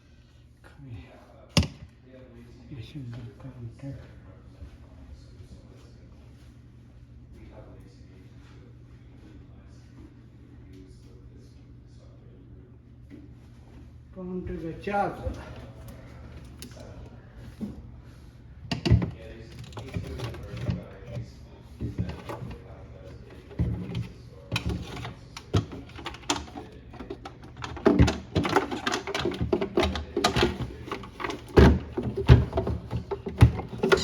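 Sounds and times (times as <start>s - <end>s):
parts clicking and rattling: 18.7s - 34.0s.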